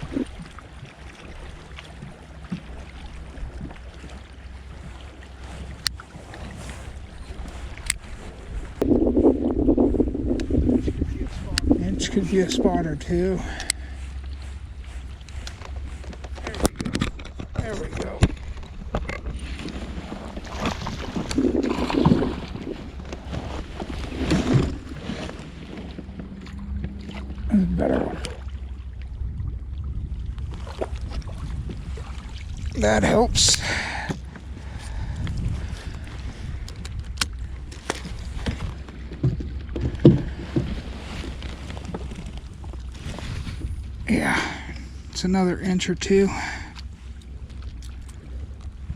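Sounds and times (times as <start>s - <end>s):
wind rumble on microphone: 0.0s - 2.2s, 2.8s - 45.8s, 46.4s - 48.9s
scuffling and splashing: 10.2s - 29.0s
clicks and knocks on kayak: 15.1s - 27.3s, 36.1s - 43.7s.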